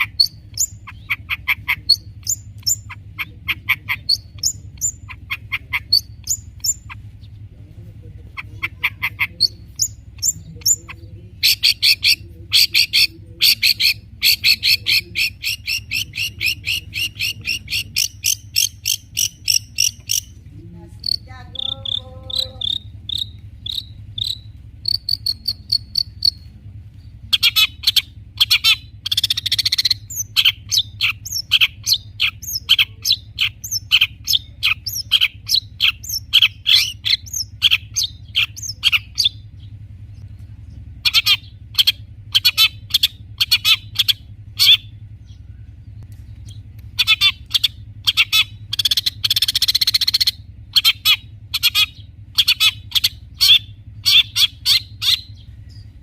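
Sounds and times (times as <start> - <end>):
shrike singing: 0.0 - 56.0.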